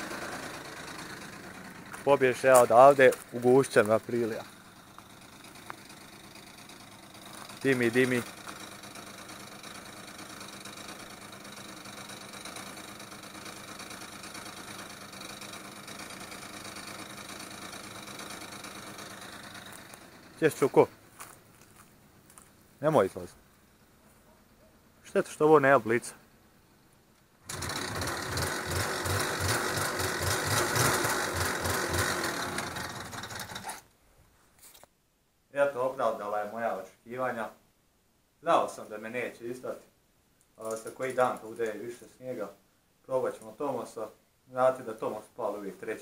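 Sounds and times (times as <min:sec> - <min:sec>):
scooter engine idling: 0:00.0 - 0:22.8, 0:27.4 - 0:33.9.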